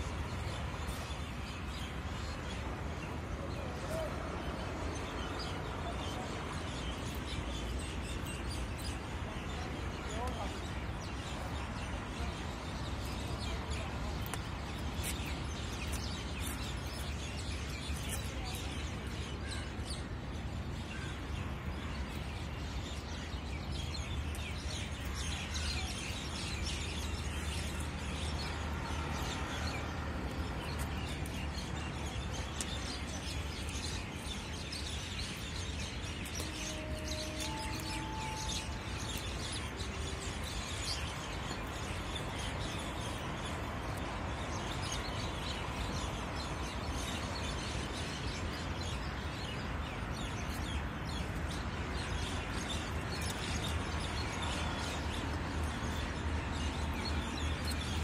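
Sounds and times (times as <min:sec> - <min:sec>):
many birds chirping: 0:00.0 - 0:58.0.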